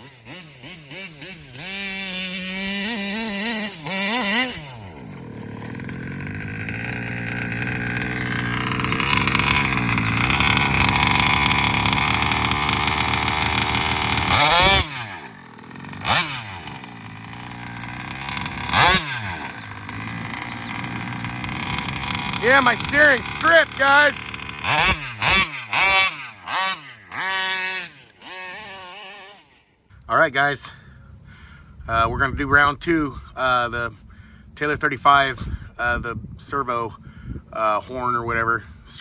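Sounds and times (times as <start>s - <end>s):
two-stroke engine revving: 0.0s - 29.9s.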